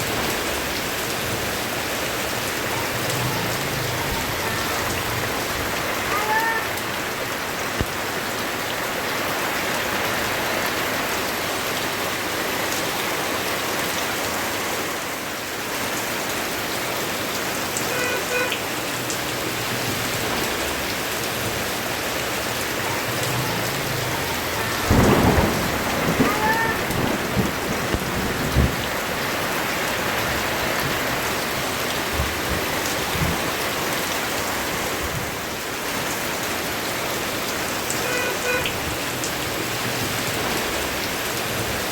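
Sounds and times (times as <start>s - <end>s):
steady rain pouring: 0.0s - 41.9s
thunderclap rumbling: 22.7s - 31.2s.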